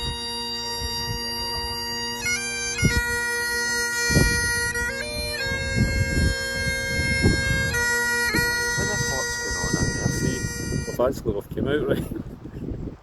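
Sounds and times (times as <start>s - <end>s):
bagpipes playing a tune: 0.0s - 11.1s
low rumbles: 0.0s - 12.5s.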